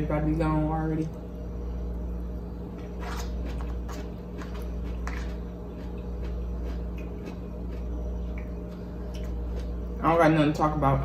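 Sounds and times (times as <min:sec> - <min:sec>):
steady low hum: 0:00.0 - 0:11.0
person chewing: 0:02.8 - 0:10.0.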